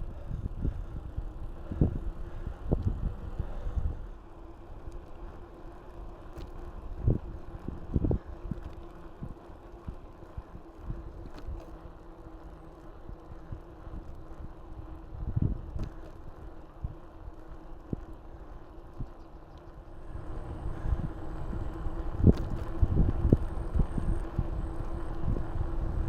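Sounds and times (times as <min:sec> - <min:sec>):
wind buffeting microphone: 0:00.0 - 0:04.1, 0:06.6 - 0:11.5, 0:13.0 - 0:17.1, 0:19.9 - 0:26.0
bike tyres rumbling: 0:00.0 - 0:26.0
faint steady hum: 0:00.0 - 0:26.0.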